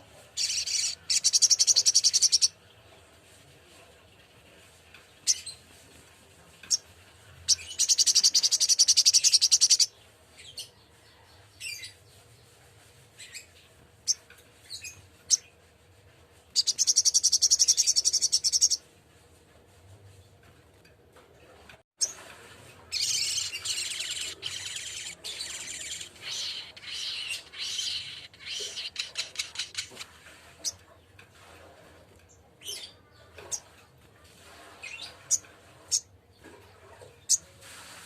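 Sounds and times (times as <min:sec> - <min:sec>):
bird chattering: 0:00.4 - 0:02.5, 0:07.7 - 0:09.9, 0:22.9 - 0:30.0
bird singing trills: 0:22.9 - 0:29.9
bird chips: 0:22.9 - 0:30.8.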